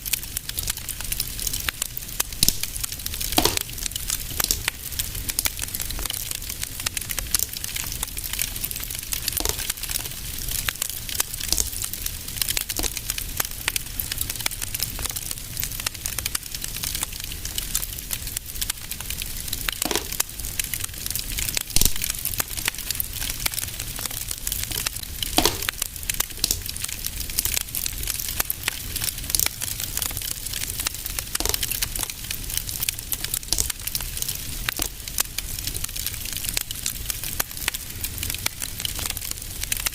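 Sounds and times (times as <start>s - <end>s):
fire popping loudly: 0.0s - 39.9s
fireplace fire crackling: 0.0s - 39.9s
low rumble of fire: 0.0s - 39.9s.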